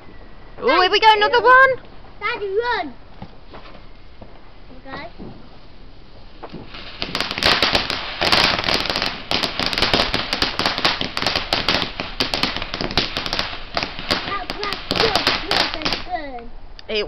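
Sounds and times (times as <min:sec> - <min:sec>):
firework crackling pops: 0:03.1 - 0:16.5
firework hiss: 0:03.4 - 0:16.4.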